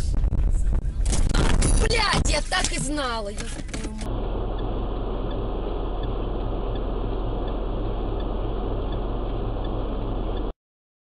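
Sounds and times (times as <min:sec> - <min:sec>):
engine and road rumble: 0:00.0 - 0:10.6
turn signal ticking: 0:02.0 - 0:10.5.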